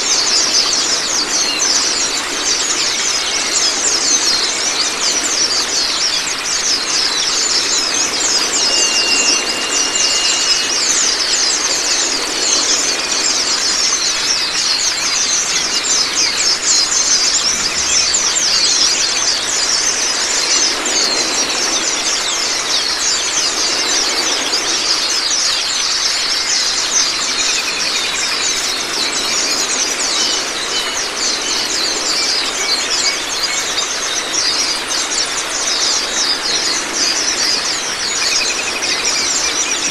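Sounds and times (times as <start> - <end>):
running water splashing: 0.0 - 39.9
songbirds twittering: 0.0 - 39.9
held whistle: 8.1 - 11.7.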